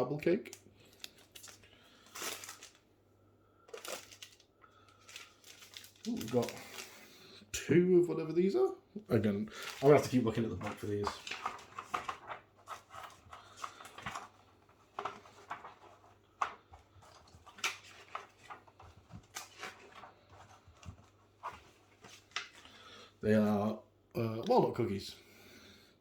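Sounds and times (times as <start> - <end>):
plastic wrappers crinkling: 0.0 - 2.9, 3.7 - 7.3, 9.1 - 22.9.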